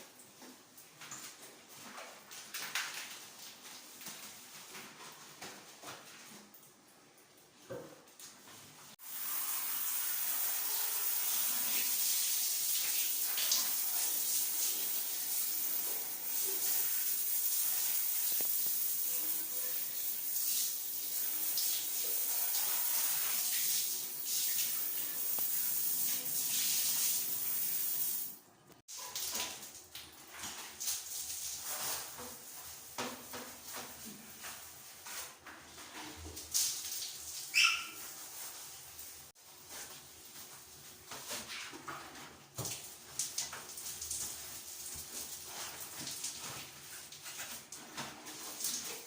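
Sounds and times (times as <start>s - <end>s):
water running from a tap: 9.0s - 28.4s, 36.3s - 39.3s.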